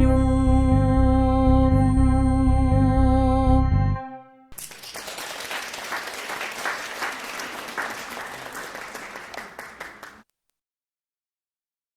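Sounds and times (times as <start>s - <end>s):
crowd applause: 4.6s - 10.2s.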